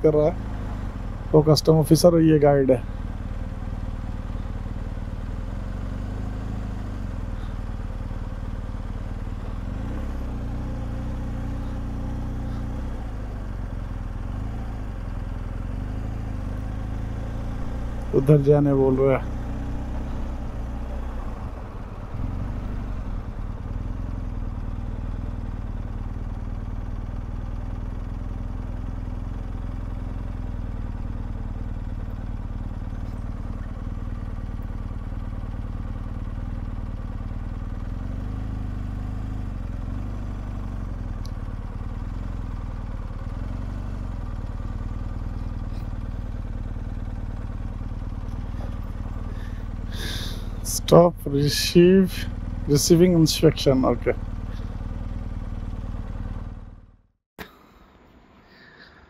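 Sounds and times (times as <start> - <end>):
motorcycle engine running: 0.0 - 57.5.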